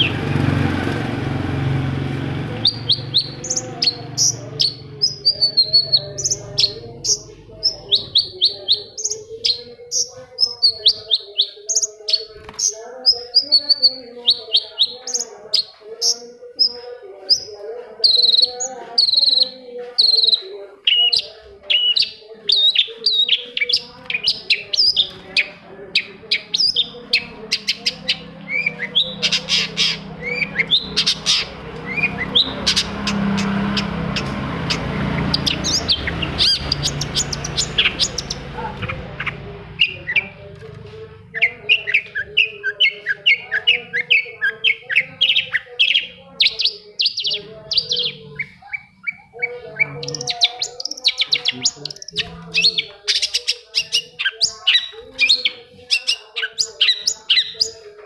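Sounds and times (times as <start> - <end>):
bird chirping song: 0.0 - 58.0
rushing background noise: 26.7 - 41.8.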